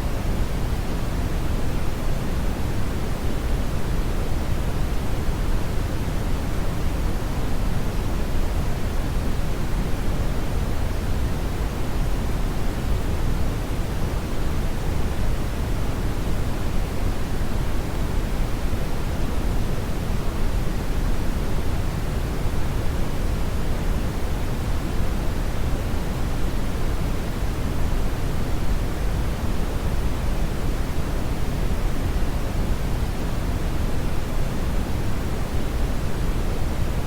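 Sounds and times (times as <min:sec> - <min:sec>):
brown noise hiss: 0:00.0 - 0:37.0.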